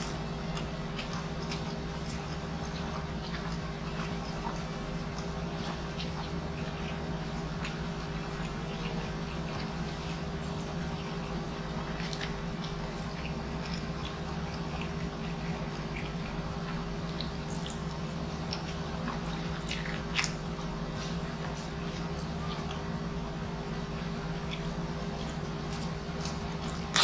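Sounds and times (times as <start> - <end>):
low hum: 0.0 - 27.0
man chewing with wet smacks: 0.0 - 27.0.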